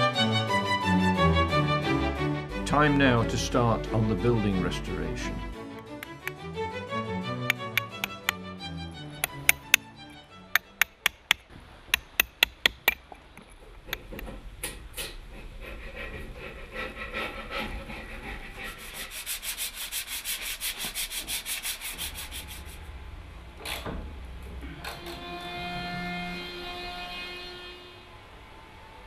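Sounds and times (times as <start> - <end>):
music: 0.0 - 11.2, 24.7 - 28.1
sharp taps: 5.8 - 6.4, 7.5 - 8.4, 9.2 - 9.8, 10.6 - 14.3
hand tool rasping on wood: 7.5 - 8.4, 9.2 - 9.8, 10.6 - 13.0, 13.9 - 14.3, 15.0 - 22.7.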